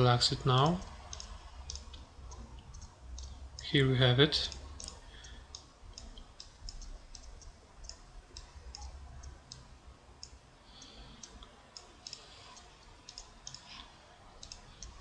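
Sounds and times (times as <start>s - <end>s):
faint low hum: 0.0s - 15.0s
mouse buttons clicking: 1.1s - 3.4s, 4.5s - 15.0s.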